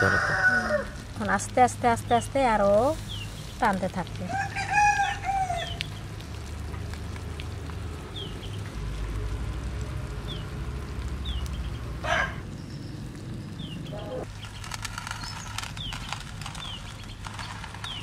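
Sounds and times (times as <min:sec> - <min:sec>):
small bird chirping: 0:03.0 - 0:03.7, 0:11.2 - 0:11.8, 0:12.4 - 0:18.0
steady low rumble: 0:05.8 - 0:18.0.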